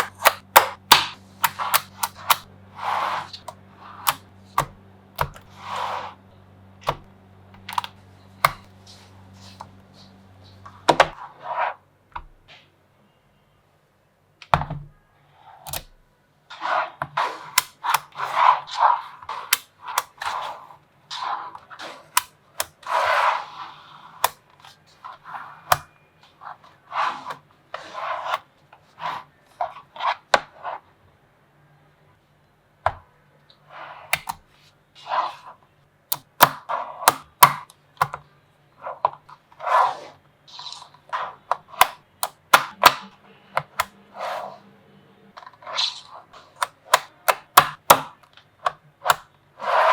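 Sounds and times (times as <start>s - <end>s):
magnetic balls clicking together: 0.0s - 2.5s.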